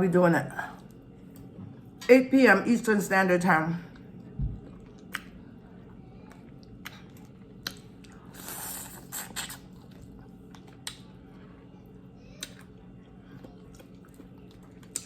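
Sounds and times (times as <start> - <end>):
person chewing food: 3.9 - 15.0.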